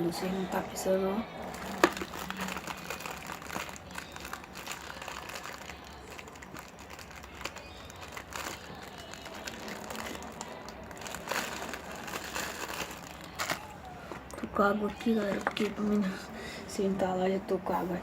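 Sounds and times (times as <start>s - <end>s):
plastic packaging crinkling: 1.5s - 16.2s.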